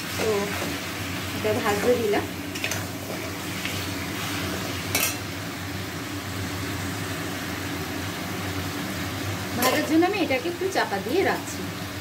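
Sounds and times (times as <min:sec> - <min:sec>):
chicken sizzling in a pan: 0:00.0 - 0:12.0
metal spatula clinking on pan: 0:04.9 - 0:05.2.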